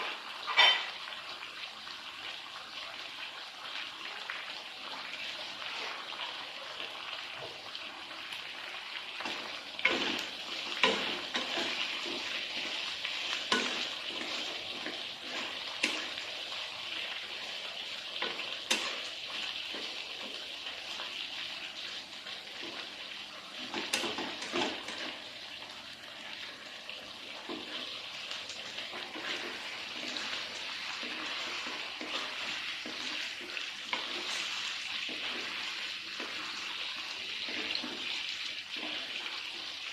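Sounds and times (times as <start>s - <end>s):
food sizzling in a frying pan: 0.0s - 39.9s
utensil scraping a pan: 9.2s - 16.2s, 28.7s - 36.6s.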